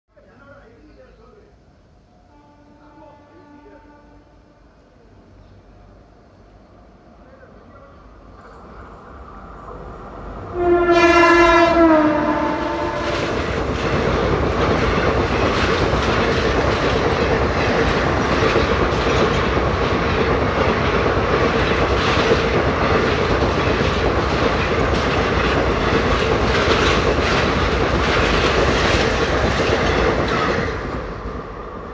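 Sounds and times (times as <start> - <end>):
locomotive horn: 2.3 - 4.7, 10.5 - 13.5
wheels clacking on rail joints: 12.4 - 31.2.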